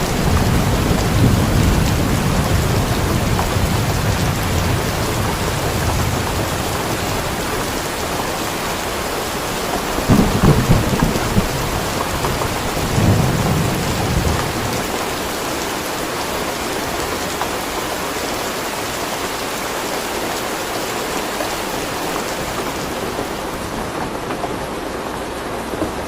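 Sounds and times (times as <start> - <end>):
low thunder rumble: 0.0 - 16.6
heavy rain falling: 0.0 - 26.0.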